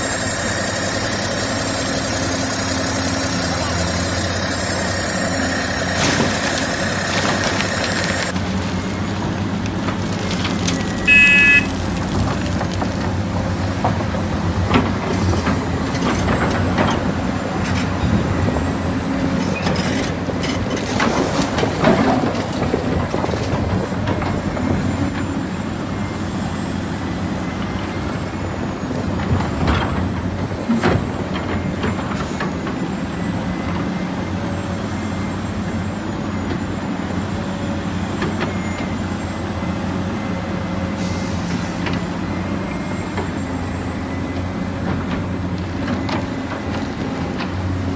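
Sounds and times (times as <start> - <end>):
model trucks engine-like hum: 0.0 - 47.9
short beep: 10.8 - 11.8.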